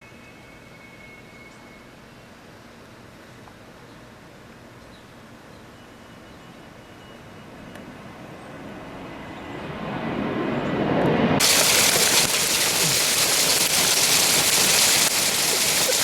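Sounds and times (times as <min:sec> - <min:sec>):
heavy rain and hail: 0:11.4 - 0:16.0.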